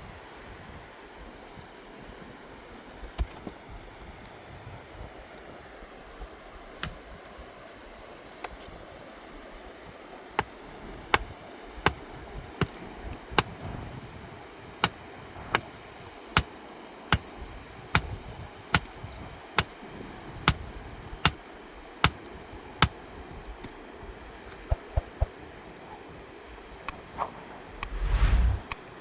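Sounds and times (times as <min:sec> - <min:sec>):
hand tool striking metal: 0:10.4 - 0:12.0, 0:12.6 - 0:13.6, 0:15.6 - 0:15.8, 0:16.4 - 0:17.3, 0:18.0 - 0:19.8, 0:20.5 - 0:23.0.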